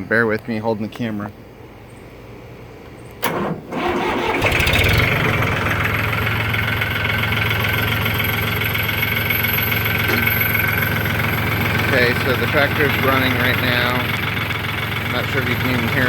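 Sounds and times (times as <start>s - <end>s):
tractor engine starting and idling: 3.2s - 16.0s.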